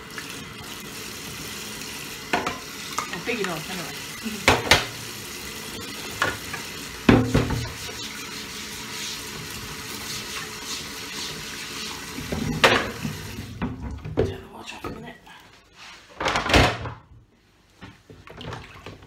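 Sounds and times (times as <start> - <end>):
tap running into a sink: 2.2 - 3.8, 4.4 - 5.0, 5.8 - 8.1, 12.1 - 14.3
dishes knocking and clinking: 2.3 - 3.6, 4.4 - 4.9, 6.2 - 7.8, 12.3 - 14.3.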